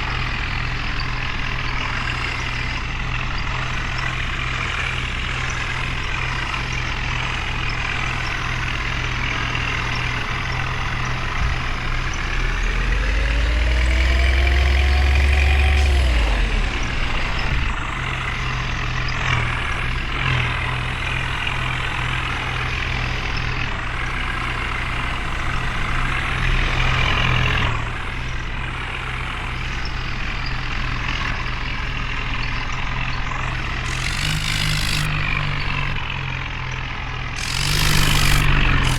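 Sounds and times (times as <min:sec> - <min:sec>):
heavy diesel engines under load: 0:00.0 - 0:38.9
rising and falling tone: 0:12.6 - 0:18.4, 0:37.4 - 0:38.9.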